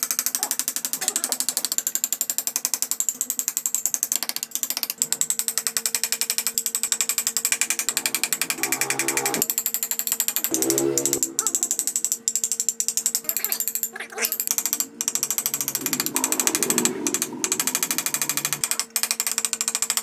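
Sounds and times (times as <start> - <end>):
woodworking power tool running: 7.2 - 9.5, 14.5 - 18.9.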